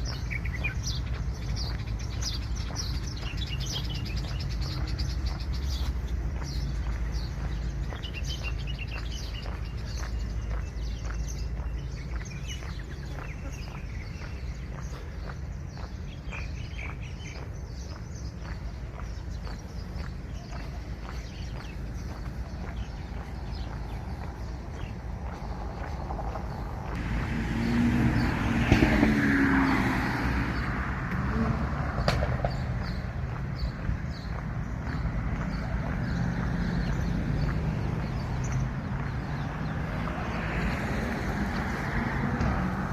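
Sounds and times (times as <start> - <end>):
footsteps walking: 0.0 - 29.8, 32.2 - 42.9
steady low rumble: 0.0 - 40.4
birds chirping: 0.0 - 42.9
car passing by: 22.0 - 42.9.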